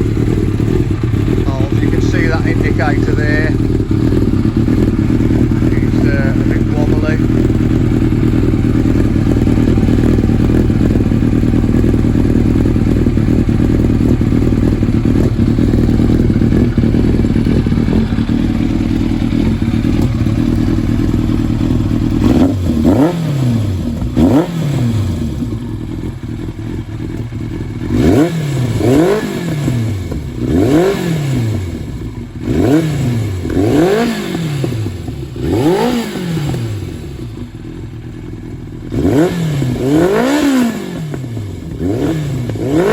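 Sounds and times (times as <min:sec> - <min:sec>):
motorcycle engine idling and revving: 0:00.0 - 0:42.9.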